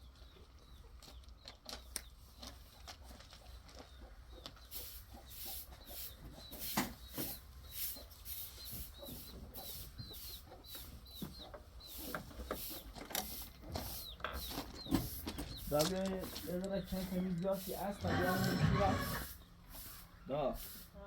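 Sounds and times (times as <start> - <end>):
chickens clucking: 0.0 - 21.0
short high chicken calls: 17.0 - 20.8.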